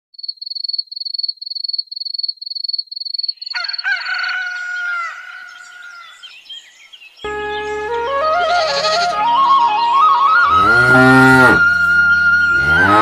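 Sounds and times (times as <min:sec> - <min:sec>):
rooster crowing: 0:03.5 - 0:06.4.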